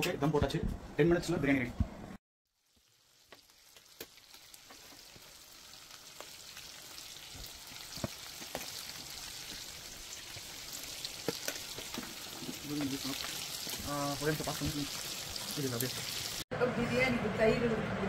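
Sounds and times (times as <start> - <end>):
food sizzling in hot oil: 2.5 - 16.4.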